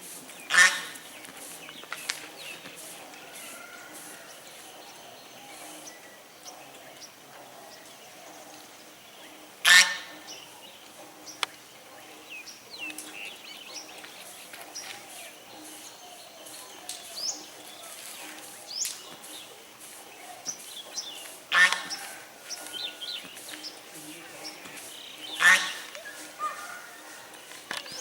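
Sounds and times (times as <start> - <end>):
outdoor background noise: 0.0 - 28.0
waterfowl honk: 0.5 - 1.0, 9.6 - 10.2, 21.5 - 23.1, 25.3 - 27.3.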